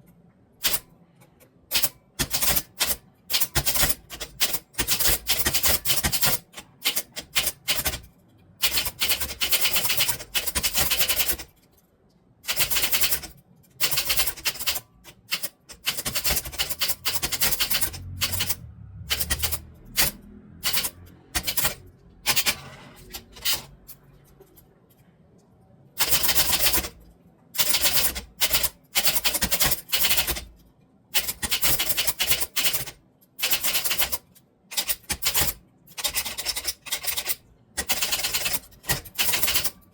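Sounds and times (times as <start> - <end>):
typewriter key strikes: 12.5 - 22.5.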